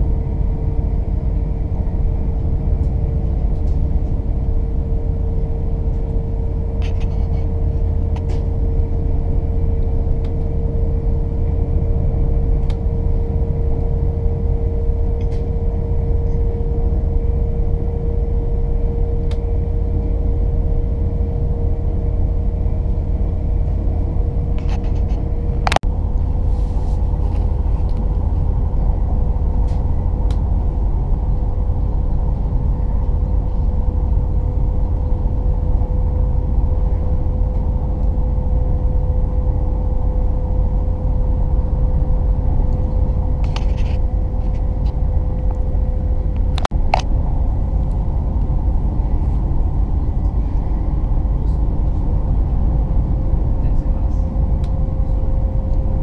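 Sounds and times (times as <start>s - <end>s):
train rumbling with whine: 0.0s - 56.0s.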